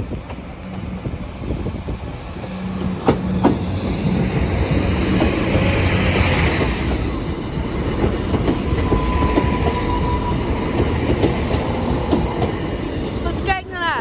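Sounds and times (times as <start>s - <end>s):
train passing rumble: 0.0s - 14.0s
wheels clattering over rail joints: 2.4s - 13.6s.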